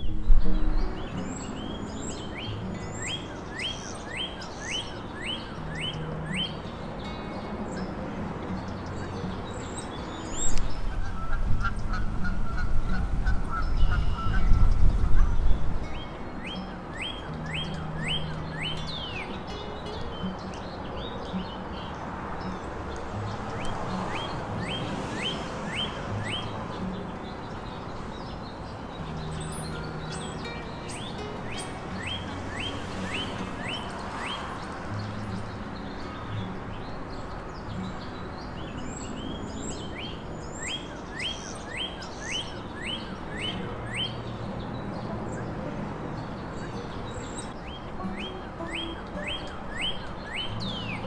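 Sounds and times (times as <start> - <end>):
songbird whistling: 0.0 - 6.7, 9.6 - 19.6, 23.5 - 26.6, 29.2 - 35.1, 38.9 - 44.2, 46.6 - 51.0
birds chirping: 0.0 - 51.0.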